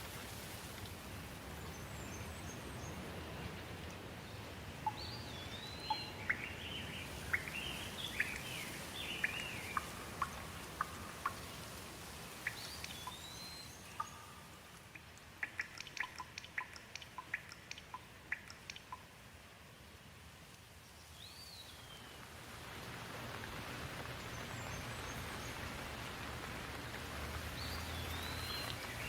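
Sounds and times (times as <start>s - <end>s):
rain: 0.0s - 29.0s
water dripping: 3.8s - 19.5s, 22.1s - 29.0s
bird chirping: 4.8s - 11.5s, 12.4s - 19.1s, 27.6s - 29.0s.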